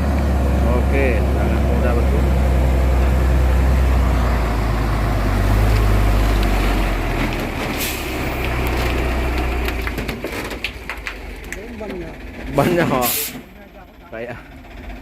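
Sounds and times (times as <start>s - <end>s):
diesel truck engine droning: 0.0s - 15.0s
short hiss: 13.0s - 13.5s.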